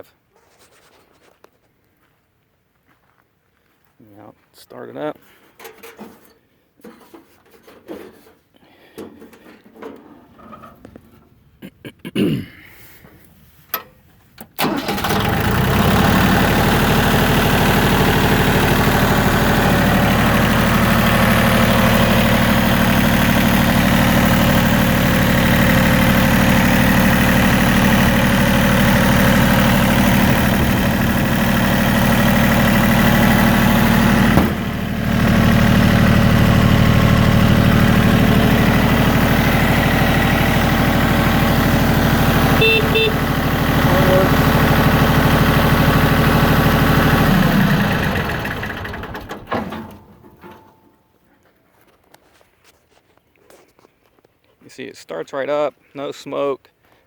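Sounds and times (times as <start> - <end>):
diesel engine running: 14.6 - 50.3.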